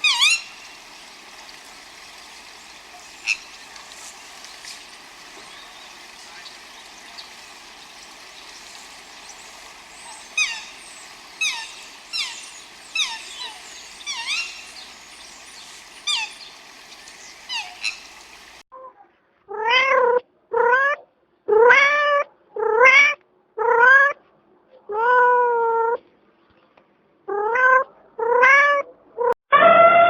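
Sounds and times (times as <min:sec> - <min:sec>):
short high falling calls: 0:00.0 - 0:18.6
steady hiss: 0:00.0 - 0:18.6.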